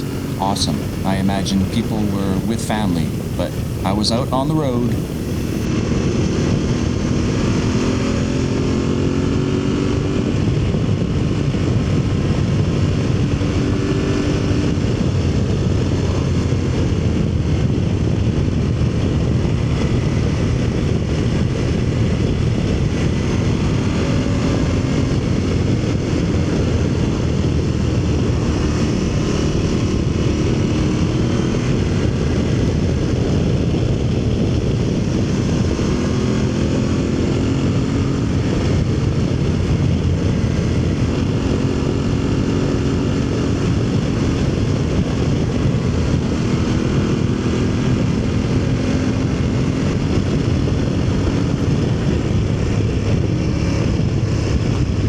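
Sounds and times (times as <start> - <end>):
motorcycle engine running: 0.0 - 5.7
wind noise: 0.0 - 8.4, 9.1 - 55.0.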